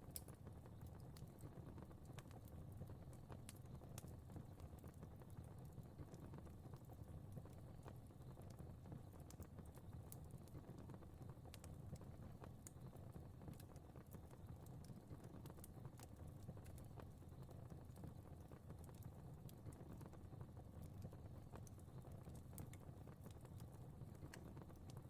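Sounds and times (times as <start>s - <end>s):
fire crackling: 0.1s - 25.0s.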